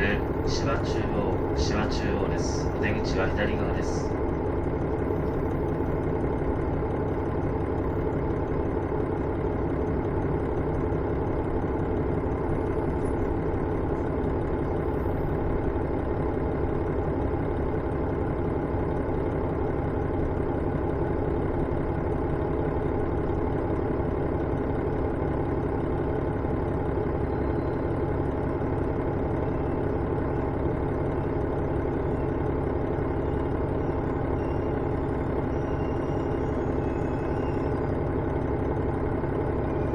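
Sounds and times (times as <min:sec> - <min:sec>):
diesel railcar engine idling: 0:00.0 - 0:39.9.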